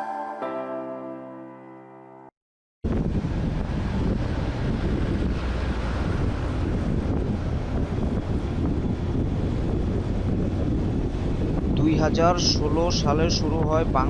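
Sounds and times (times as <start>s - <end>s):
wind buffeting microphone: 2.8s - 14.0s.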